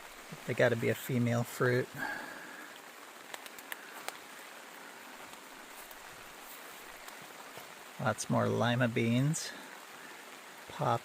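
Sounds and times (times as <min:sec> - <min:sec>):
steady rain falling: 0:00.0 - 0:11.0
sharp drip ticks: 0:02.7 - 0:04.4.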